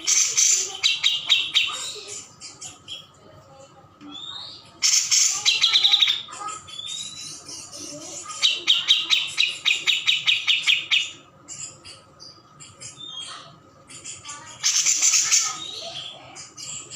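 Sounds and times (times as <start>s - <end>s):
songbird trilling: 0.0s - 2.0s, 8.3s - 12.0s.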